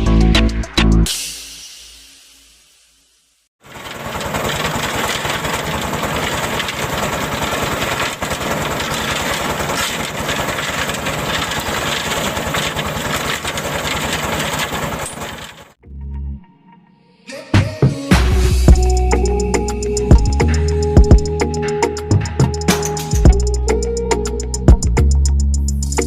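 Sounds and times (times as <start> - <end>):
small motor rattling: 3.6 - 15.8.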